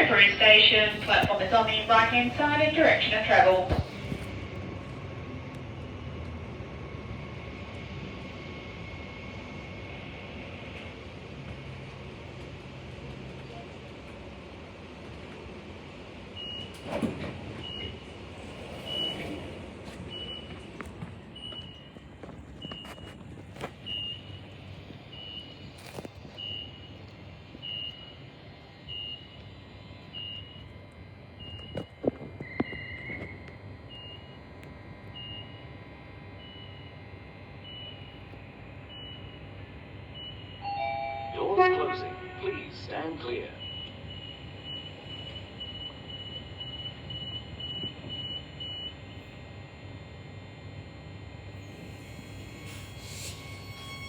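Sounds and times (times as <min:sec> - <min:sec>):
train idle hum: 0:00.0 - 0:54.0
train door warning beeps: 0:00.4 - 0:04.1, 0:16.2 - 0:30.7, 0:31.3 - 0:35.8, 0:36.4 - 0:37.0, 0:37.6 - 0:49.3, 0:51.6 - 0:54.0
door-closing warning beeper: 0:00.9 - 0:03.2.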